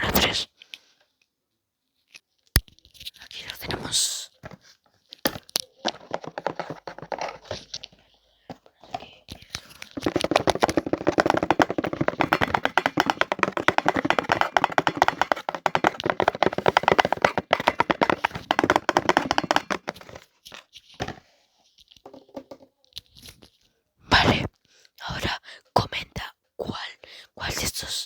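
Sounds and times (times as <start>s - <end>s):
close-up tapping and clicking: 9.3s - 20.2s.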